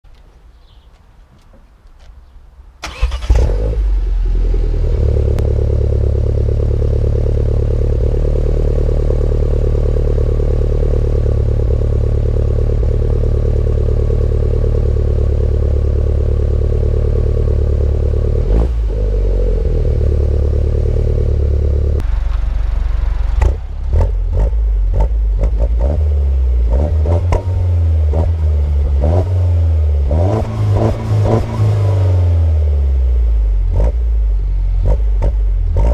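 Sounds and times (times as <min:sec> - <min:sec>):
car engine starting and idling: 0:02.8 - 0:35.9
engine throttle blips: 0:18.4 - 0:32.4.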